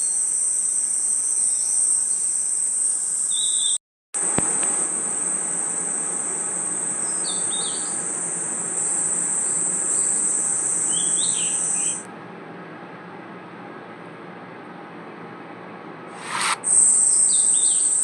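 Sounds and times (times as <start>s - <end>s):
cricket trill: 0.0s - 12.0s, 16.2s - 18.0s
insect chirps: 0.0s - 12.0s, 16.2s - 18.0s.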